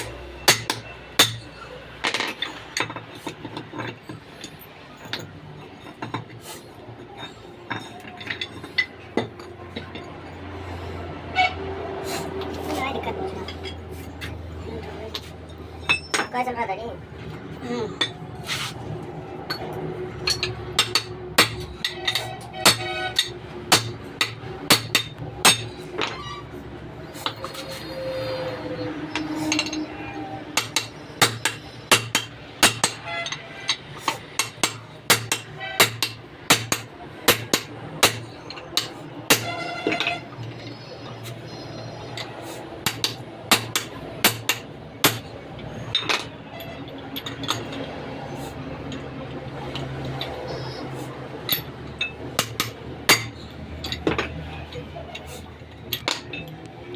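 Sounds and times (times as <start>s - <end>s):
hammer striking steel: 0.0s - 3.0s, 19.5s - 26.4s, 29.0s - 40.3s, 42.1s - 45.3s, 51.5s - 54.3s.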